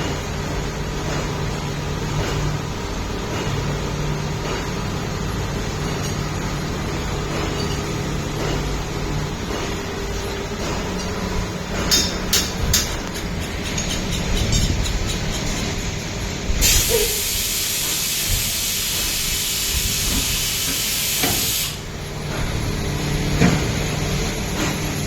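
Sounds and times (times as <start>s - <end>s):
machining centre humming: 0.0s - 25.0s
loud hiss: 16.6s - 21.9s.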